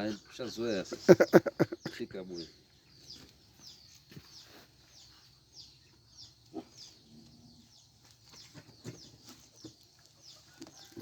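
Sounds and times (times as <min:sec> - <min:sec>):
faint bird chirping: 0:00.0 - 0:11.0.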